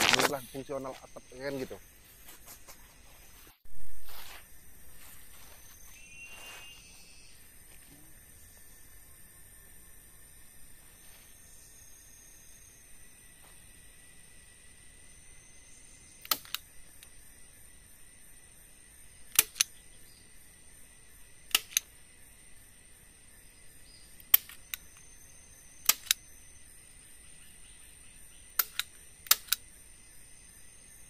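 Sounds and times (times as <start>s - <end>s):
forest insects droning: 0.0s - 31.0s
sharp short clicks: 16.2s - 17.1s, 19.3s - 19.8s, 21.5s - 21.9s, 24.2s - 25.0s, 25.8s - 26.2s, 28.5s - 29.6s.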